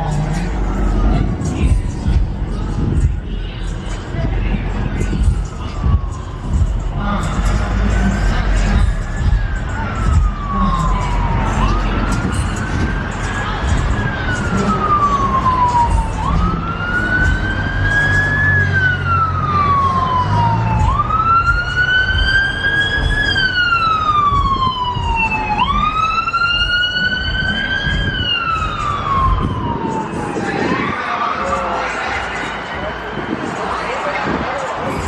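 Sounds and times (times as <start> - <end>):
low rumble: 0.0 - 17.7
emergency siren wailing: 0.0 - 35.0.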